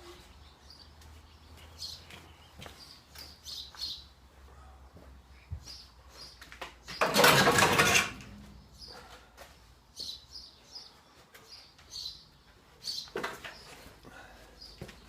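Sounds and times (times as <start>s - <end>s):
small birds chirping: 0.0s - 7.0s, 8.4s - 15.0s
sheet-steel panels clattering: 7.0s - 8.5s.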